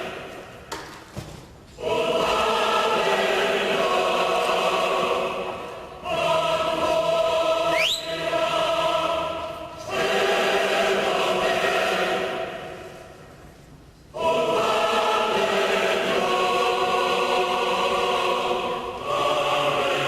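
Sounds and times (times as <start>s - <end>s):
choir singing held chords: 0.0s - 0.6s, 1.8s - 13.3s, 14.1s - 20.0s
short rising whistle: 7.7s - 8.2s.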